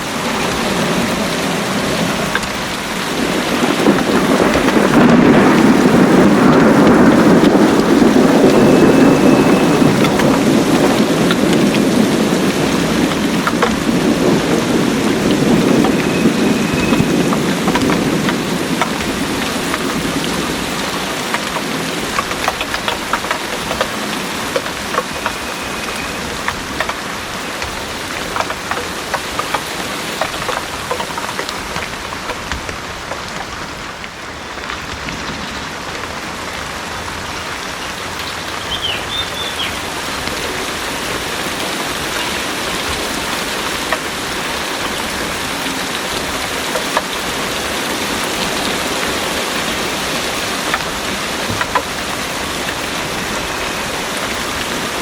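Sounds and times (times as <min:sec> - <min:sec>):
heavy rain pouring: 0:00.0 - 0:55.0
low rumble of thunder: 0:00.1 - 0:32.9.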